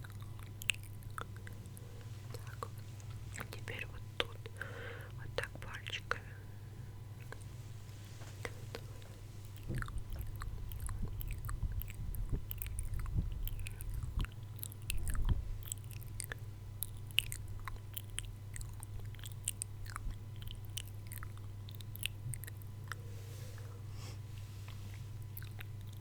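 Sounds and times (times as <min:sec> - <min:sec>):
wet mouth clicks and smacks: 0:00.0 - 0:04.4, 0:09.6 - 0:23.0.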